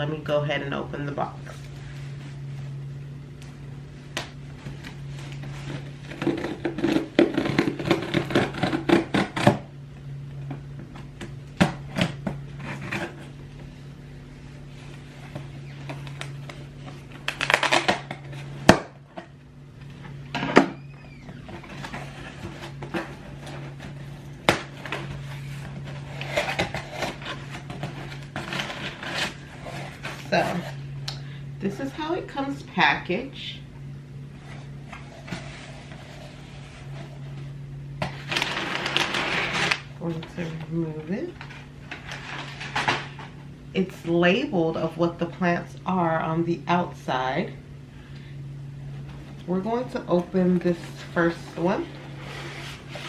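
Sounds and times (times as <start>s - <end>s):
steady low hum: 0.0s - 53.0s
cardboard tearing and rustling: 5.1s - 9.6s, 11.7s - 13.4s, 14.7s - 19.2s, 20.3s - 30.9s, 34.4s - 37.4s, 38.0s - 40.5s, 41.4s - 43.4s.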